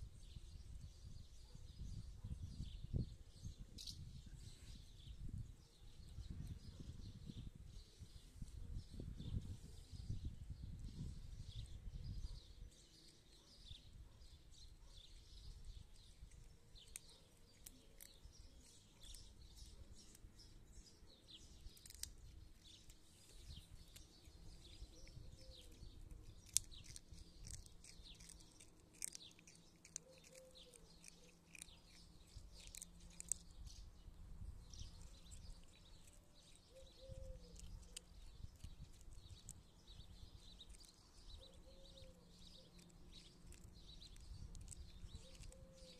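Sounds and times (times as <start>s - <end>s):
faint birds chirping: 0.0s - 45.9s.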